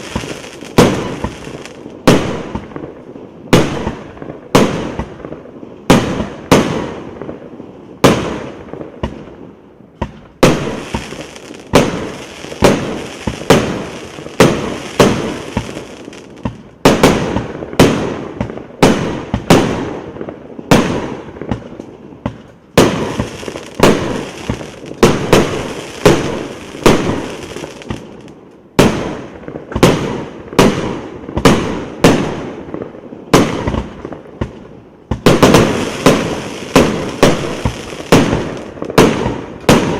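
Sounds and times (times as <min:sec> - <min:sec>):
firework hiss: 0:00.0 - 0:02.5, 0:10.5 - 0:16.6, 0:22.8 - 0:28.3, 0:35.3 - 0:39.4
firework bangs: 0:00.0 - 0:39.9.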